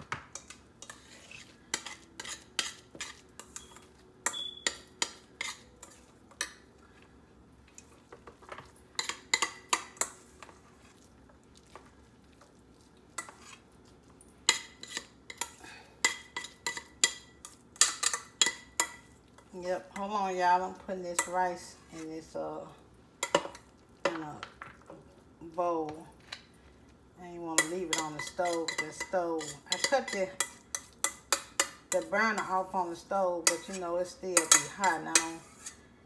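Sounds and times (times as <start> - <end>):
spoon clinking against pot: 1.7 - 6.6, 14.5 - 19.1, 27.6 - 32.5, 33.4 - 33.8, 34.4 - 35.8.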